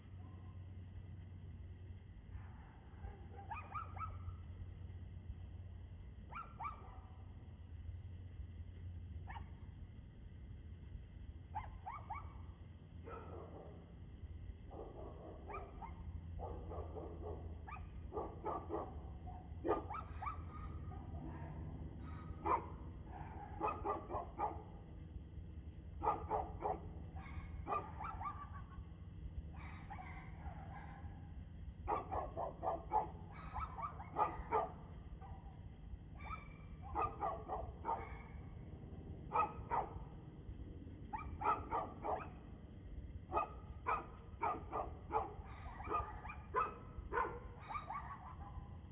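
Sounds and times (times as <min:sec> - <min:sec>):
dog barking: 0:02.3 - 0:04.4, 0:06.3 - 0:07.2, 0:09.2 - 0:09.6, 0:11.5 - 0:13.9, 0:14.7 - 0:24.8, 0:26.0 - 0:28.9, 0:29.5 - 0:38.6, 0:39.3 - 0:40.2, 0:41.1 - 0:42.5, 0:43.3 - 0:48.9.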